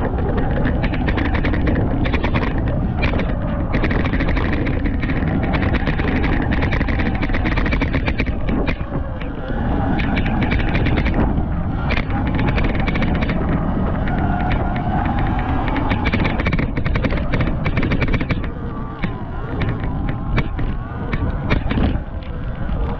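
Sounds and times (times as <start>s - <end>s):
bike rattling and knocking: 0.0s - 22.9s
wind rumble on microphone: 0.0s - 22.9s.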